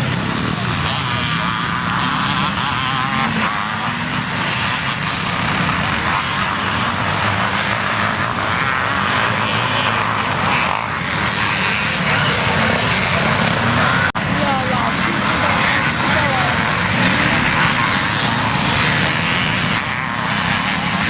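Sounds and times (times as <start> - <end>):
motocross bike engines revving: 0.0 - 21.0.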